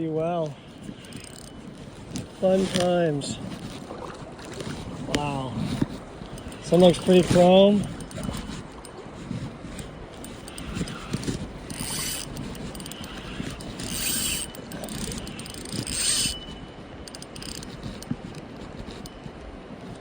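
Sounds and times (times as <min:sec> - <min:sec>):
fishing reel ratchet clicking: 0:00.9 - 0:03.1, 0:06.2 - 0:19.3.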